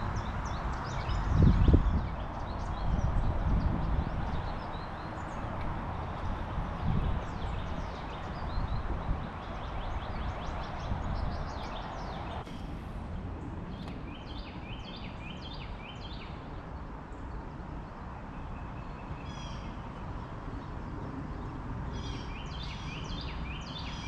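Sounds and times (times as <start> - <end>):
small birds chirping: 0.0 - 12.8
wind buffeting microphone: 0.0 - 18.0
rushing noise: 12.2 - 14.2.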